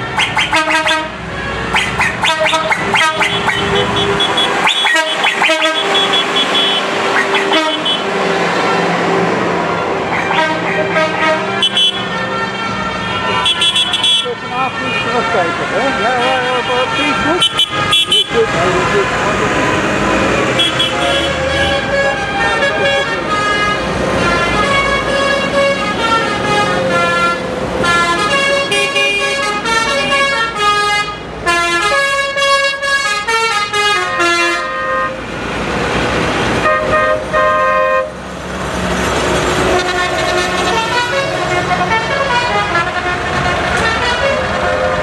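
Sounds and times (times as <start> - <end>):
tractor engines running: 0.0 - 31.4, 38.0 - 45.0
horn tune of changing notes: 0.1 - 35.2.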